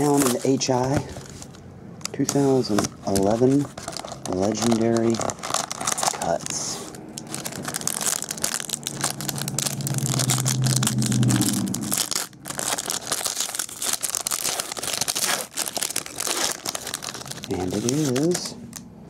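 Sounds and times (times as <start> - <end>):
packaging crinkling and tearing: 0.0 - 18.9
low steady drone: 8.6 - 12.4.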